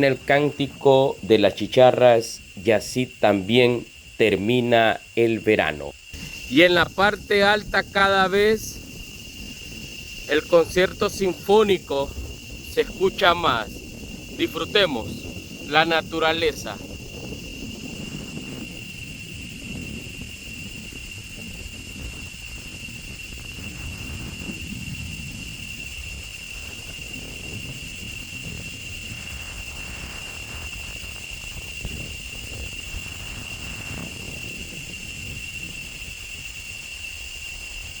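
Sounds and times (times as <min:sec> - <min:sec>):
cicadas singing: 0:00.0 - 0:38.0.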